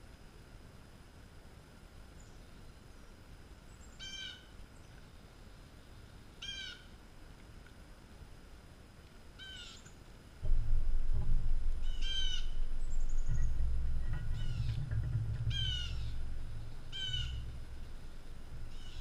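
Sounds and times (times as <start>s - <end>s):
faint low rumble: 10.2s - 19.0s
bird calling: 11.2s - 19.0s.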